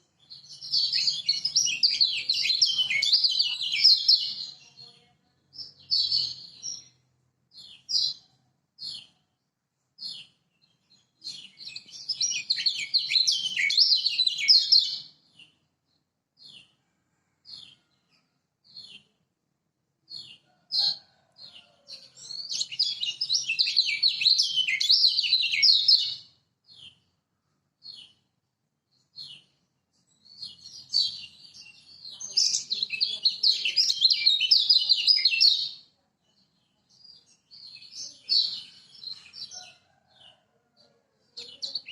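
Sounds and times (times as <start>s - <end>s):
bird chirping and warbling: 0.2s - 4.8s, 10.0s - 15.5s, 20.1s - 27.0s, 30.3s - 35.8s.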